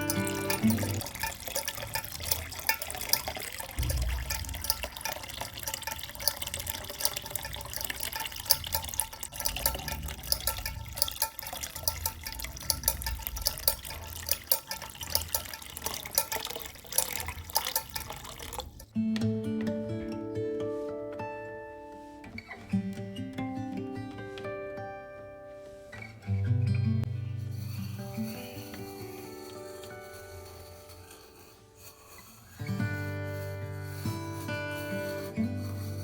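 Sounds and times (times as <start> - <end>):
water drips and splashes: 0.0 - 18.9
water running in thin stream: 0.0 - 18.9.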